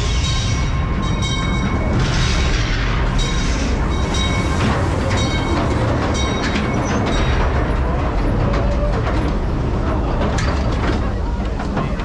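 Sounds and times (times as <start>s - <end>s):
train cars rumbling and rattling: 0.0s - 12.0s
metal squeals: 3.2s - 8.8s.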